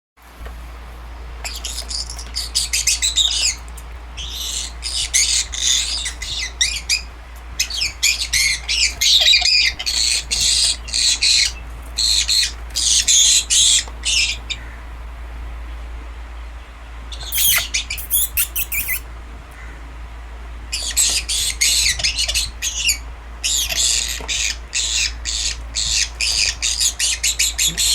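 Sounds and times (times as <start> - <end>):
parrot screeching: 17.3 - 19.0.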